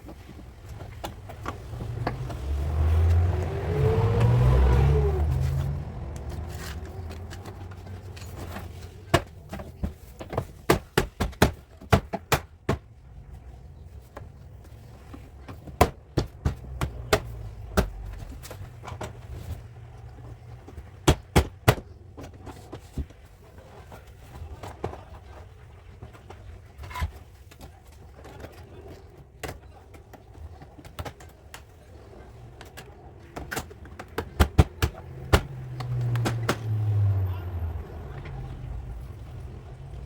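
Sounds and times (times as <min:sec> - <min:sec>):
low background rumble: 0:00.0 - 0:10.2, 0:31.7 - 0:40.0.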